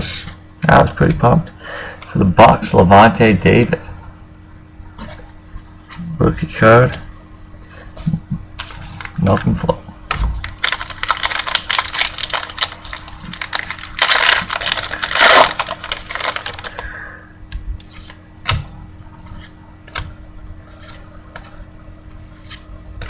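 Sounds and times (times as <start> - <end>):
foil wrapper crinkling: 10.4 - 16.9.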